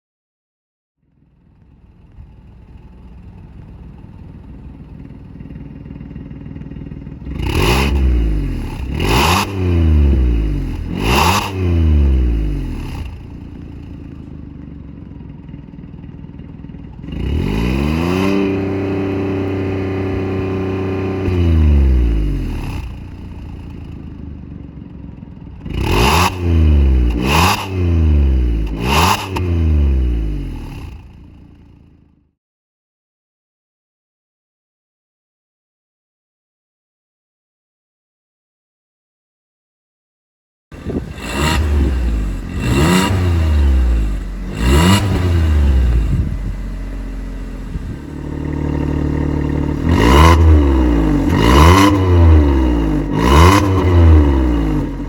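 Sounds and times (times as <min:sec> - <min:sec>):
car engine revving: 0:01.6 - 0:14.4, 0:16.9 - 0:24.2, 0:25.5 - 0:32.0, 0:40.7 - 0:55.0.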